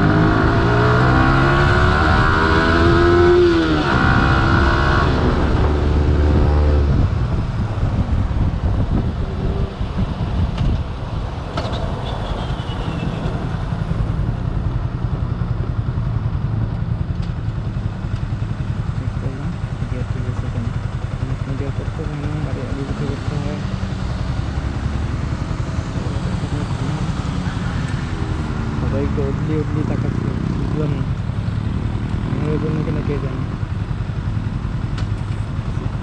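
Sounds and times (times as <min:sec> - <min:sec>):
motorcycle engine revving: 0:00.0 - 0:36.0
wind rush: 0:03.7 - 0:14.7.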